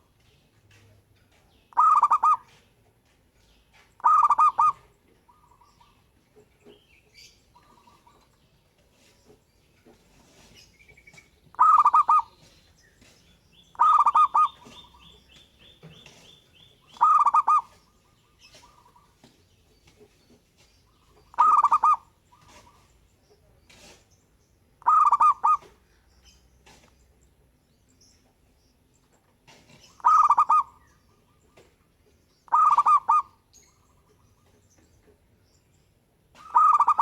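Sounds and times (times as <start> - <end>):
dove cooing: 1.7 - 2.6, 4.0 - 6.0, 11.5 - 12.5, 13.7 - 17.9, 21.2 - 22.9, 24.8 - 25.8, 29.7 - 30.8, 32.5 - 33.4, 36.3 - 37.0.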